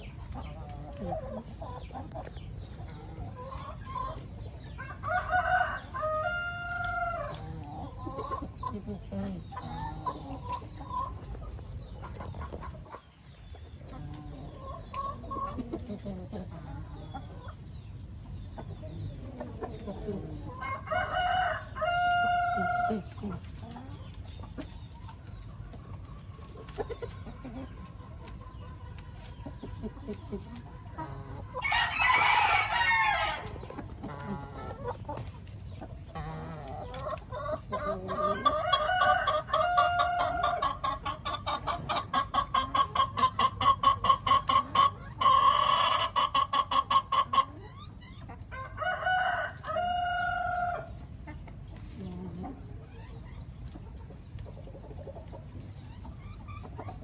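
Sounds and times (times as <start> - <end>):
chickens clucking: 0.0 - 57.0
rooster crowing: 4.8 - 7.2, 20.6 - 22.8, 31.6 - 33.5, 48.6 - 50.9.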